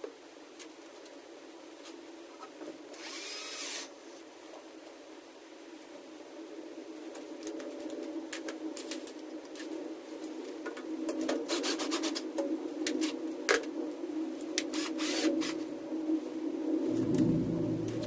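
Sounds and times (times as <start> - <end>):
steady droning hum: 16.6 - 18.0
deeper hum: 16.8 - 18.0.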